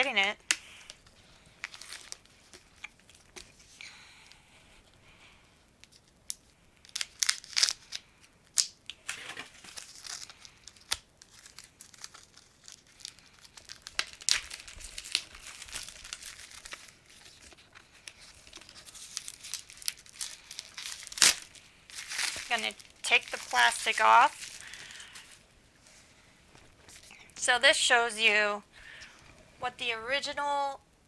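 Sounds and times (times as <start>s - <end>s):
plastic wrap crinkling and tearing: 0.4s - 3.8s, 5.8s - 27.2s.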